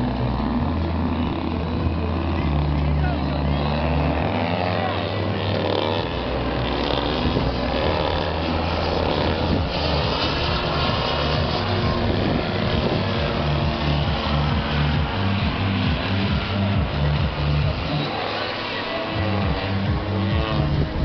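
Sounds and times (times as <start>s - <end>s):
toy aeroplane motor and propeller: 0.0s - 21.0s.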